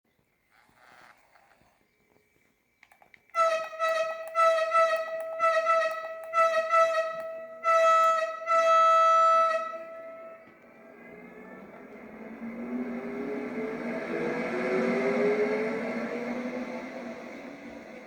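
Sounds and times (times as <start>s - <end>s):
train horn toots and blasts: 3.4s - 10.7s.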